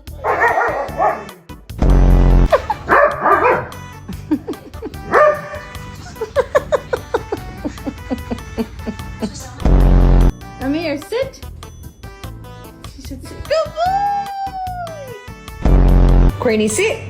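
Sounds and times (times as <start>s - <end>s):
dog barking: 0.1s - 1.4s, 2.5s - 3.9s, 5.0s - 5.9s
music with steady beat: 1.6s - 16.9s.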